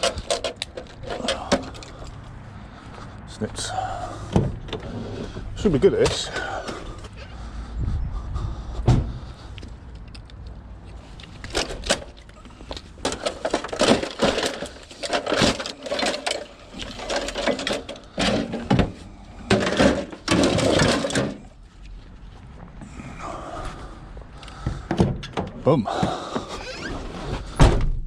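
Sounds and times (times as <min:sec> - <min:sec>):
metal and plastic knocks and cracks: 0:00.0 - 0:01.9, 0:11.4 - 0:21.4.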